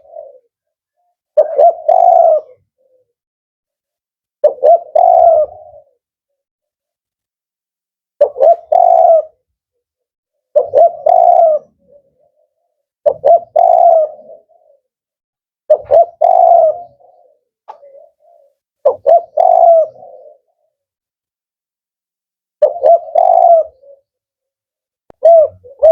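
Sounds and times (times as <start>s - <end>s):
dove cooing: 0.0s - 3.2s, 4.4s - 6.4s, 8.2s - 15.1s, 15.7s - 21.0s, 22.6s - 24.4s, 25.1s - 25.9s.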